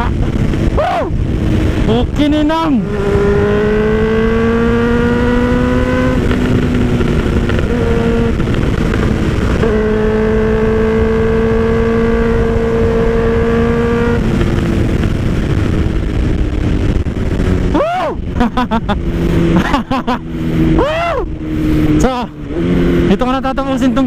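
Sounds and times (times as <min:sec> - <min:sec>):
motorcycle engine at speed: 0:00.0 - 0:24.0
wind rush on microphone: 0:00.0 - 0:24.0.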